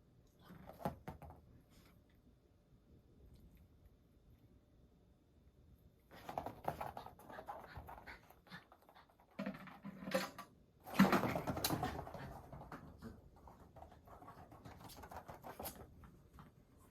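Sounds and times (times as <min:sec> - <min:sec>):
dog playing with ball: 0:10.8 - 0:16.0.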